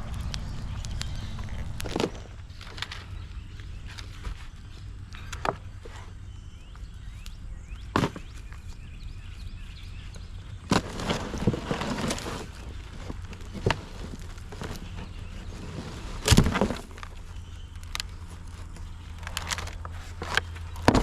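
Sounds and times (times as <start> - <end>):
wood clattering and breaking: 0.2 - 3.1, 7.9 - 8.6, 10.6 - 21.0.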